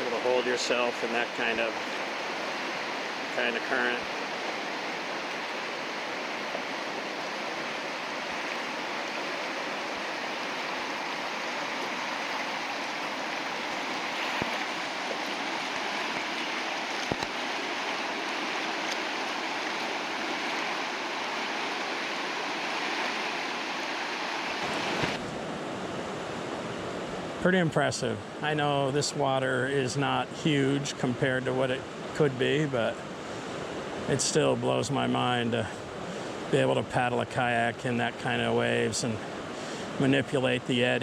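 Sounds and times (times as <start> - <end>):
river rapids rushing: 0.0 - 25.2.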